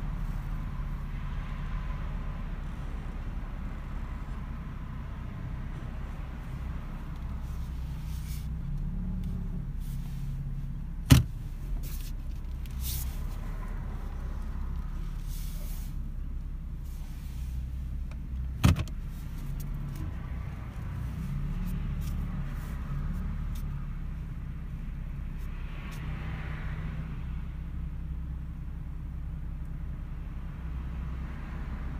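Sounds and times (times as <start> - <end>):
car engine running: 0.0 - 25.6.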